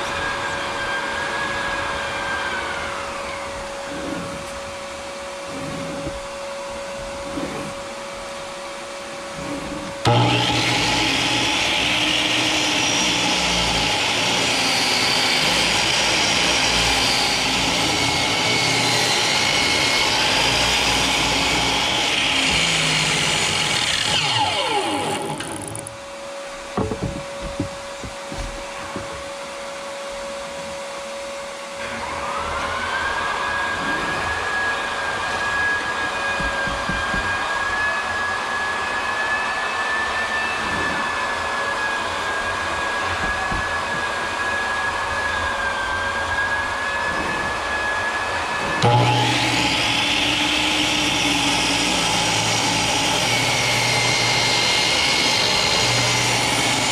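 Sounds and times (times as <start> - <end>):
electric power tool running: 0.0 - 56.9
motor tool high whine: 0.0 - 56.9
wood knocking: 26.7 - 29.3, 36.4 - 37.4, 43.2 - 44.2.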